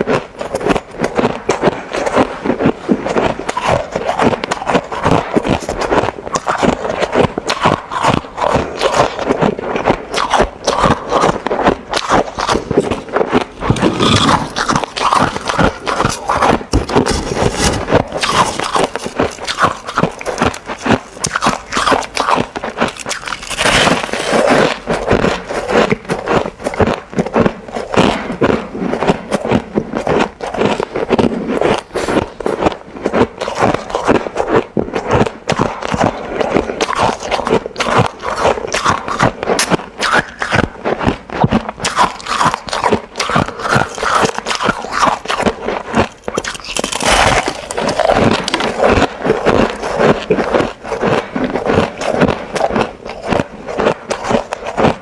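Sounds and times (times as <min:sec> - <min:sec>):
ice being chewed: 0:00.0 - 0:55.0.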